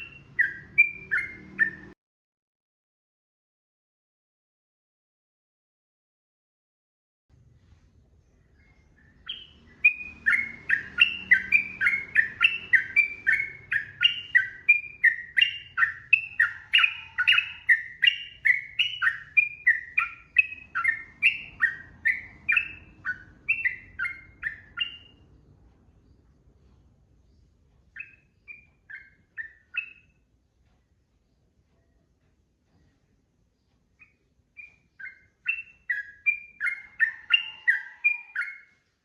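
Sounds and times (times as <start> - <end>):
bird chattering song: 0.0 - 2.0, 8.3 - 25.4, 27.2 - 30.3, 32.8 - 38.9.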